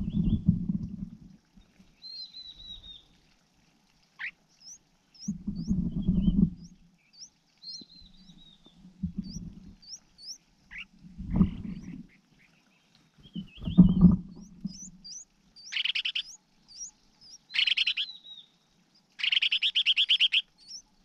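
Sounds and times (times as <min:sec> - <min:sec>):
low rustling and thumping: 0:00.0 - 0:01.3, 0:08.7 - 0:09.8, 0:13.2 - 0:14.9
small birds chirping: 0:01.6 - 0:03.2, 0:04.2 - 0:21.0.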